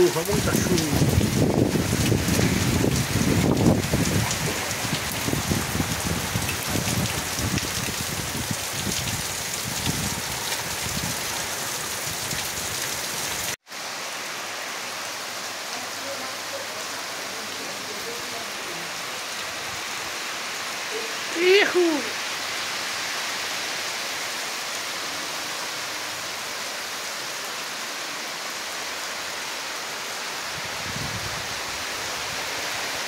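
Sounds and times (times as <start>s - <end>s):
heavy rain pouring: 0.0s - 33.0s
gusty low rumbling: 1.0s - 10.2s.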